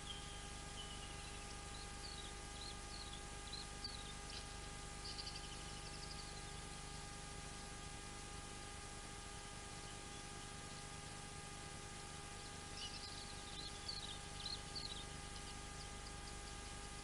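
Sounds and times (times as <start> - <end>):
bird trill: 0.0 - 6.8, 12.4 - 17.0
faint bird chirps: 0.0 - 7.8, 9.7 - 11.2, 12.2 - 17.0
electrical hum: 0.0 - 17.0
microphone hiss: 0.0 - 17.0.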